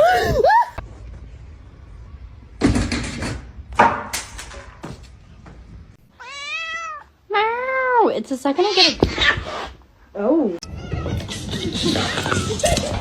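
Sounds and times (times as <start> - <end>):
cat meowing: 6.2 - 7.1.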